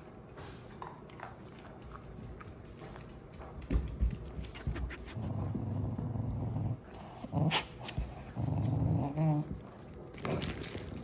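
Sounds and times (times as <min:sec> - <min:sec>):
dog growling: 0:05.1 - 0:11.0.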